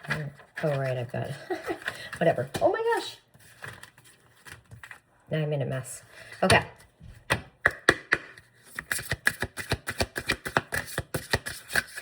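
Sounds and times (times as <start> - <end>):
cards being shuffled: 8.1 - 12.0.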